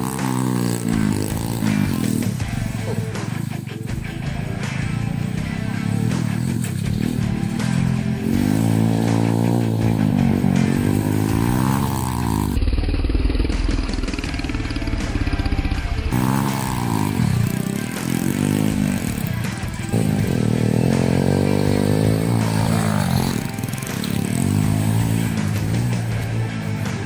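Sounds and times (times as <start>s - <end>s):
motorbike engine revving: 0.0s - 27.0s.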